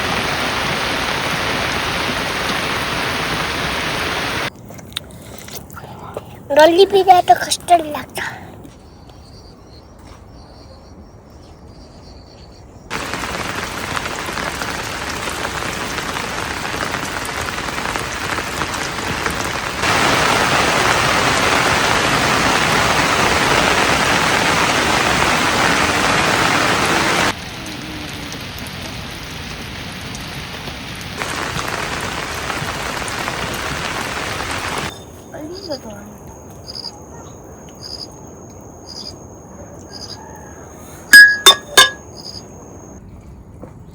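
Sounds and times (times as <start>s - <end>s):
rain falling: 0.0s - 4.5s, 12.9s - 36.9s, 41.1s - 43.0s.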